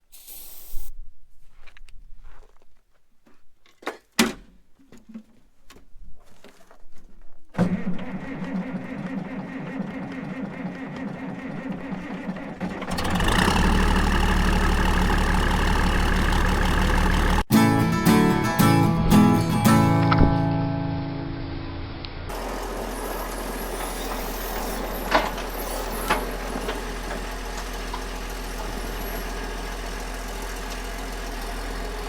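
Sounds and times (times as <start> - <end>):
engine running: 7.7 - 17.5, 21.1 - 32.0.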